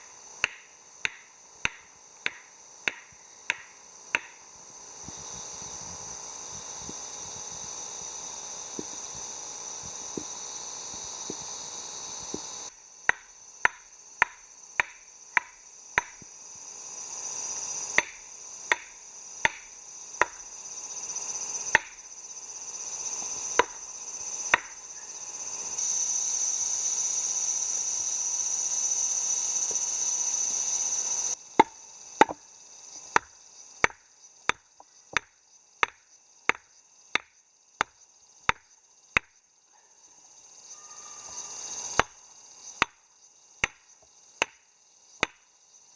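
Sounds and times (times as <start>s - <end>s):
high insect drone: 0.0s - 45.9s
chopping strikes: 0.4s - 4.4s, 12.3s - 16.3s, 18.0s - 20.4s, 21.7s - 22.0s, 23.6s - 23.8s, 24.5s - 24.8s, 31.6s - 32.4s.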